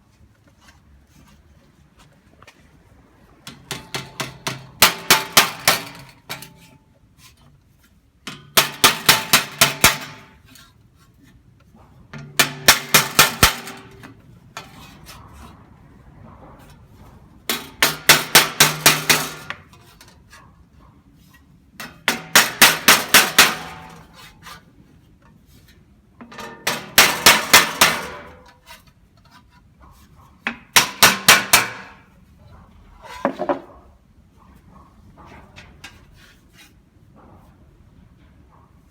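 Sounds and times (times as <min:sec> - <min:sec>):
hammer striking sheet metal: 0:03.5 - 0:06.7, 0:08.3 - 0:10.4, 0:12.2 - 0:15.0, 0:17.5 - 0:19.8, 0:21.8 - 0:24.2, 0:26.2 - 0:28.6, 0:30.5 - 0:32.1.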